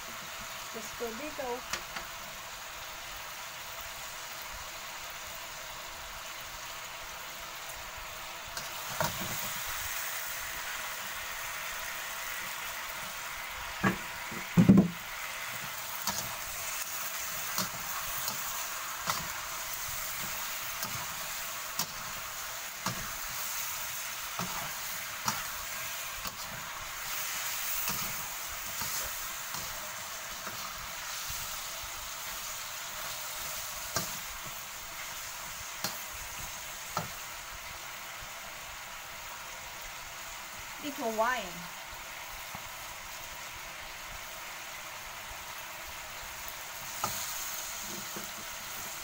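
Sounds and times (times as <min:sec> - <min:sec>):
meat sizzling in a wok: 0:00.0 - 0:49.0
metal spatula scraping a wok: 0:15.5 - 0:37.2.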